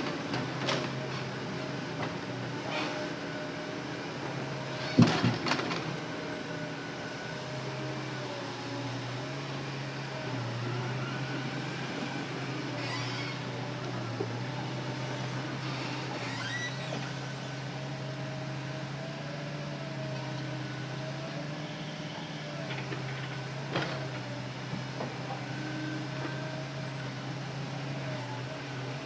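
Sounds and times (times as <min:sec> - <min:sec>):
excavator diesel engine running: 0:00.0 - 0:29.0
creaks: 0:12.8 - 0:13.4, 0:15.6 - 0:17.2.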